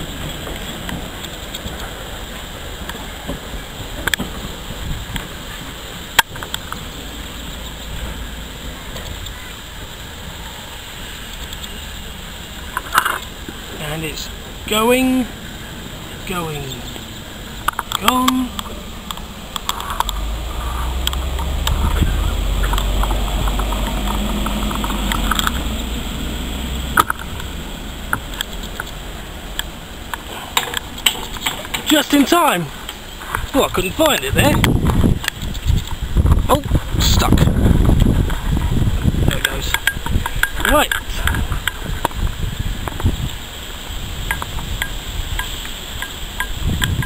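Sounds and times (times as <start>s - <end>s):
train rumbling slowly: 0.0s - 47.0s
light ticks: 28.1s - 31.9s.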